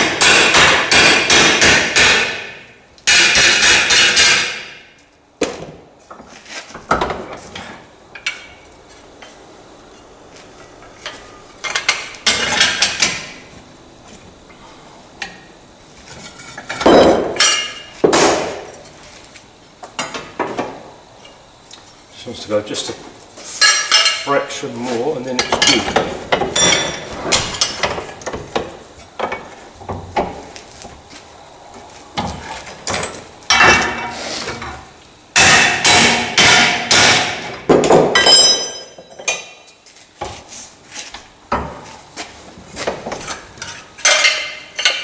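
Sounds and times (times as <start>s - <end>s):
hammer striking metal: 0.0s - 4.8s, 35.4s - 37.4s.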